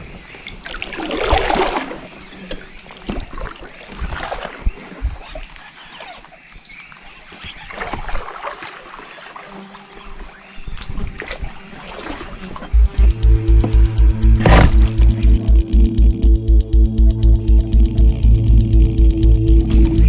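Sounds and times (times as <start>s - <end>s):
paddle splashing in water: 0.5s - 15.4s.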